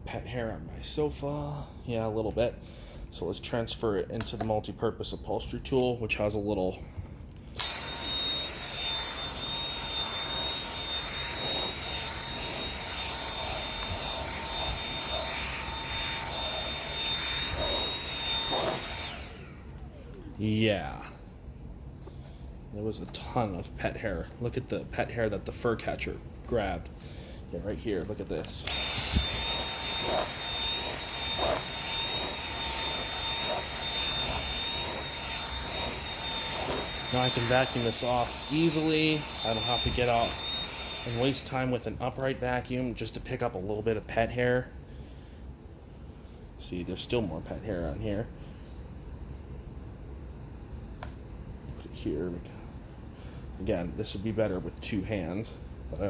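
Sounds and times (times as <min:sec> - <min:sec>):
vacuum cleaner motor whining: 0:07.6 - 0:20.4, 0:28.3 - 0:41.8.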